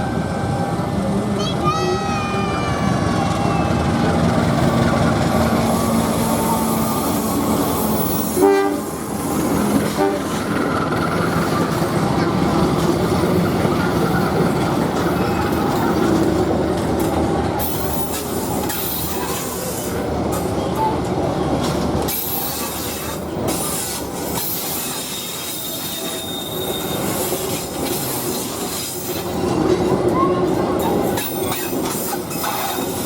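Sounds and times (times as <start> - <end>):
train rumbling over bridge: 0.0 - 33.0
metallic wheel squeal: 24.4 - 27.5.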